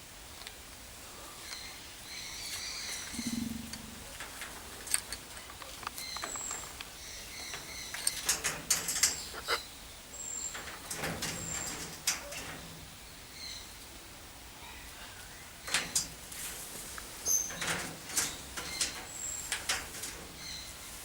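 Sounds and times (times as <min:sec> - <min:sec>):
birds chirping and whistling: 0:01.5 - 0:04.1, 0:05.9 - 0:13.8, 0:17.2 - 0:20.9.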